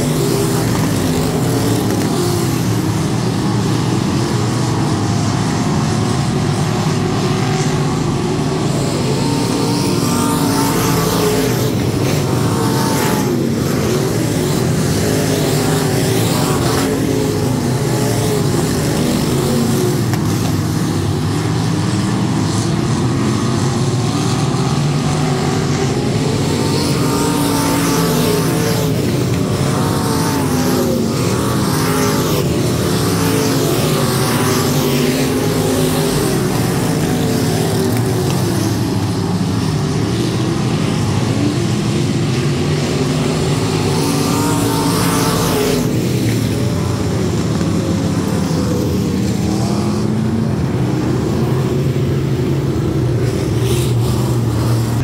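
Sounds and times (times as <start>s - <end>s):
race car engines passing: 0.0s - 55.0s.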